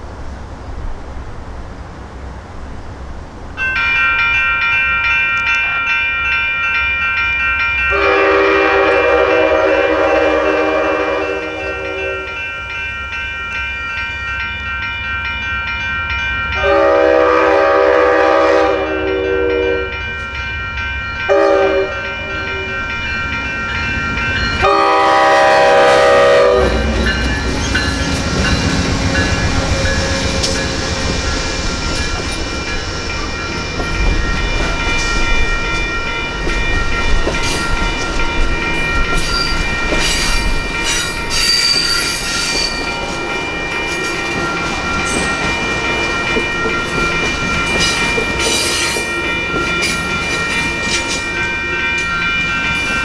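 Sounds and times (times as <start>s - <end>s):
train rumbling through: 0.0s - 53.0s
railroad crossing bells ringing: 3.5s - 53.0s
train horn blasts: 7.9s - 12.4s, 16.6s - 20.0s, 21.3s - 22.8s, 24.6s - 27.2s.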